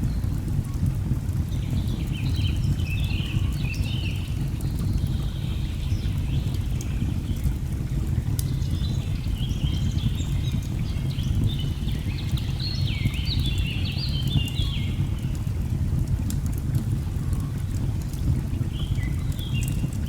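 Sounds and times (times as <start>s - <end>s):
log fire crackling: 0.0s - 20.0s
birdsong: 1.5s - 15.4s, 18.6s - 20.0s.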